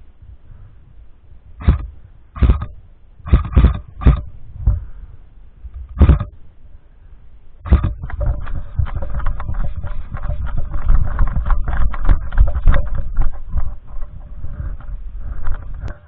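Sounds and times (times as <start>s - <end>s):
heavy low rumble: 0.0s - 16.0s
knocks and thuds: 1.6s - 4.9s, 5.8s - 6.3s, 7.7s - 14.2s.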